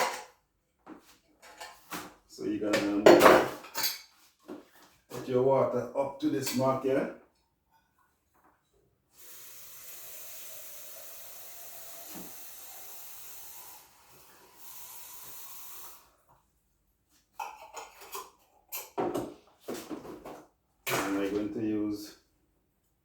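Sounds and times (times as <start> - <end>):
water stream hissing into pot: 9.2 - 16.2.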